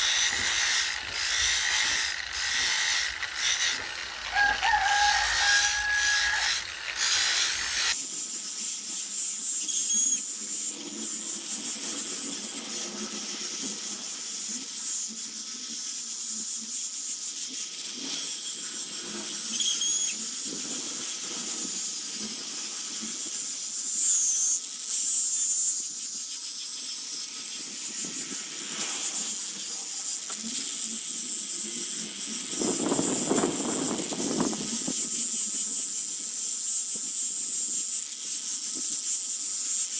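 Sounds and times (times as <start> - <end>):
power tool working wood: 0.0 - 8.0
short squeaks: 0.0 - 8.0.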